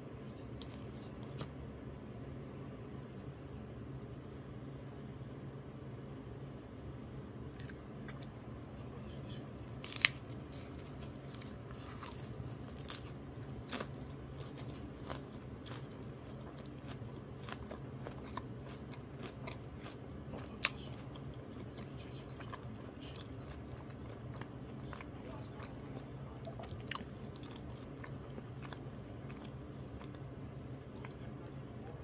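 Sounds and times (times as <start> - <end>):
steady low hum: 0.0 - 32.0
close-up chewing: 9.7 - 31.6.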